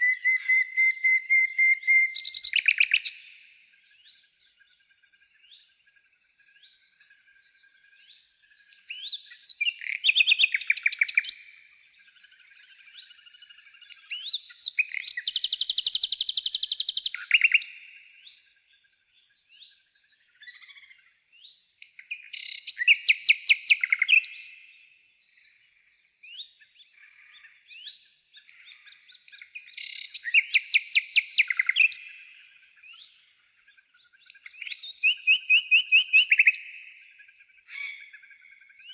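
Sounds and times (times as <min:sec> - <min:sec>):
single bird chirps: 0:00.0 - 0:04.2
songbird trilling: 0:00.0 - 0:05.7, 0:06.5 - 0:25.6, 0:26.2 - 0:38.9.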